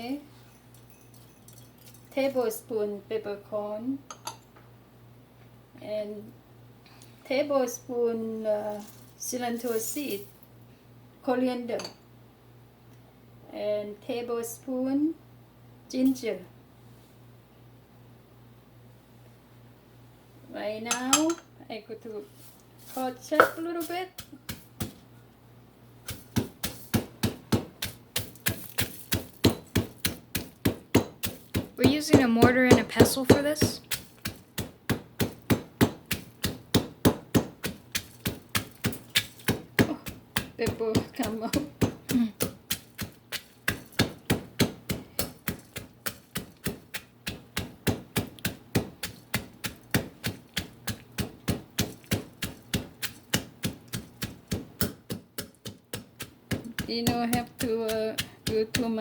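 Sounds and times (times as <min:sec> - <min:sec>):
pestle pounding in mortar: 0:24.2 - 0:25.0, 0:26.1 - 0:59.0.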